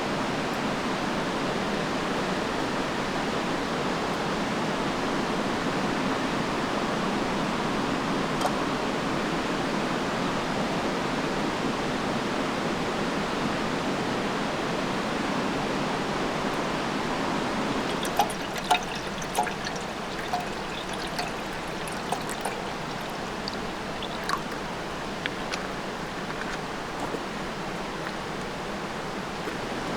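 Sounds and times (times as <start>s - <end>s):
running water: 17.1s - 29.9s.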